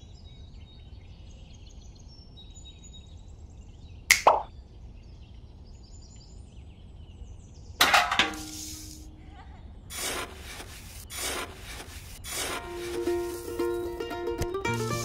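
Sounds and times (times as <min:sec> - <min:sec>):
sharp metal clank: 0:07.8 - 0:09.1
trowel scraping sand: 0:08.0 - 0:09.1, 0:09.9 - 0:15.0.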